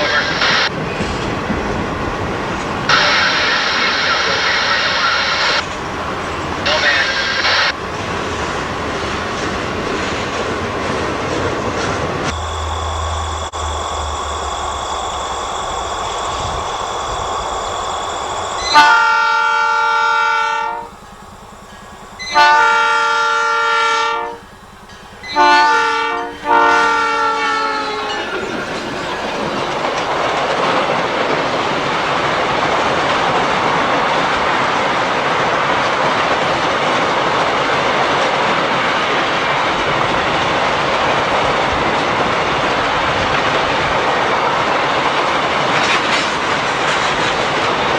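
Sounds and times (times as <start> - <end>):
freight train rumbling past: 0.0 - 47.9
locomotive air horn blasts: 2.9 - 7.8, 18.6 - 21.2, 22.2 - 24.6, 25.2 - 28.4.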